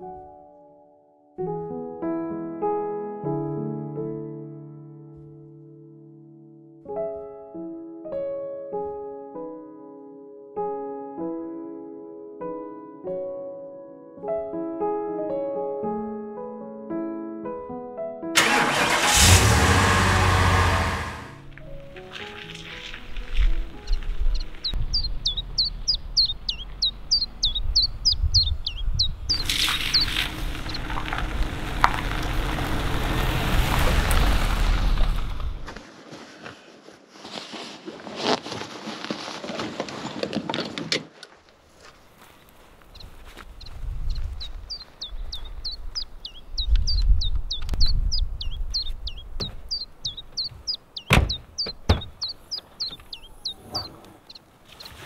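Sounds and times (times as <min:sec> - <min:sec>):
car tyres rolling on gravel: 0:18.4 - 0:27.4, 0:29.3 - 0:35.8, 0:41.7 - 0:55.0
bird whistling: 0:23.8 - 0:30.9, 0:44.1 - 0:54.4
low rumble: 0:24.0 - 0:35.7
sharp thunks: 0:49.2 - 0:54.2.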